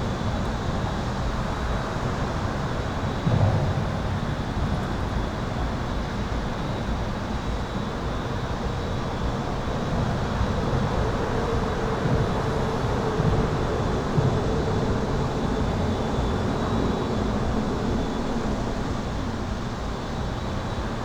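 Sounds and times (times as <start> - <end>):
highway traffic rushing: 9.0 - 20.0.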